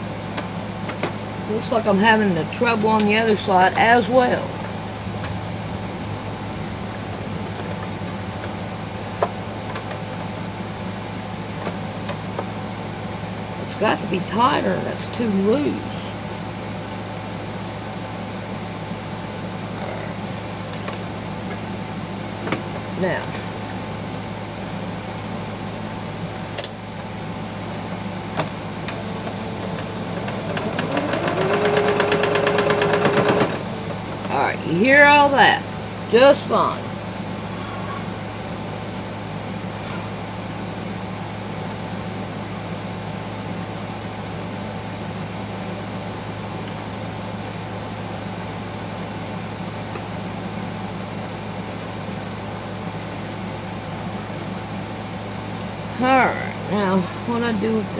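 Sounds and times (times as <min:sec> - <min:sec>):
motor or fan humming: 0:00.0 - 0:57.9
sewing machine running: 0:28.8 - 0:34.4.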